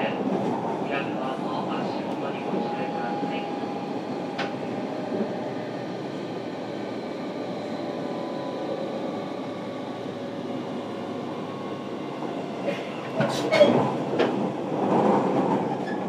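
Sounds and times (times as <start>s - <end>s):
train interior rolling noise: 0.0s - 16.0s
faint steady tones: 1.2s - 13.2s.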